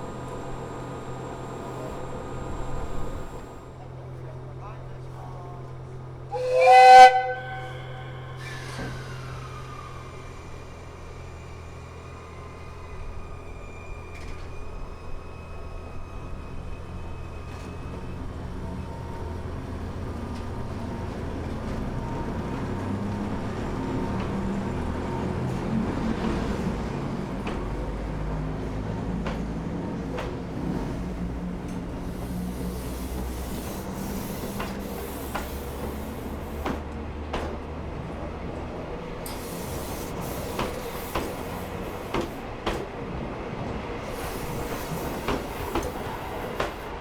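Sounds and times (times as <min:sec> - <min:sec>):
train rumbling: 0:00.0 - 0:47.0
train whistle blast: 0:06.3 - 0:10.0.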